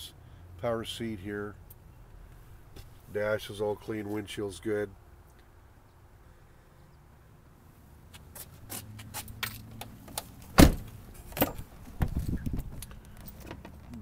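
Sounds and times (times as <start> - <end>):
truck cab clicks and rattles: 9.4 - 13.9
loud thump: 10.6 - 10.9.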